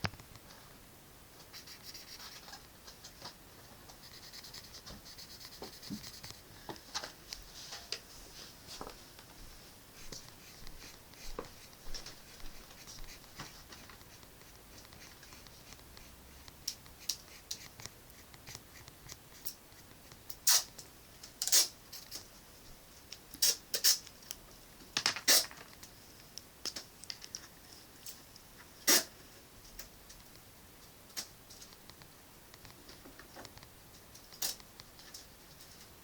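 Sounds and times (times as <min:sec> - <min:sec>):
drawing tool scratching paper: 0:01.5 - 0:02.7, 0:03.9 - 0:06.5, 0:10.0 - 0:20.8.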